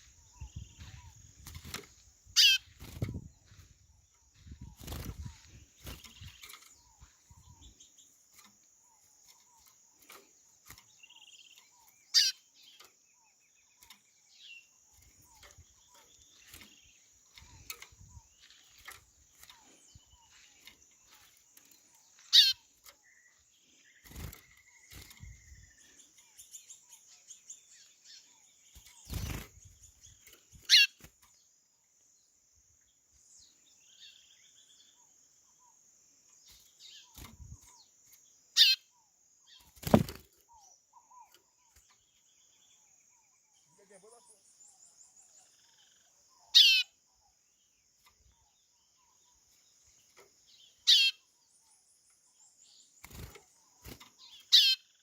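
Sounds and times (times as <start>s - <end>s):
faint bird chirps and trills: 0.0s - 55.0s
sharp downward-sweeping bird calls: 2.3s - 2.8s, 12.1s - 12.5s, 22.2s - 22.7s, 30.6s - 31.0s, 38.6s - 38.9s, 46.4s - 47.0s, 50.8s - 51.3s, 54.5s - 55.0s.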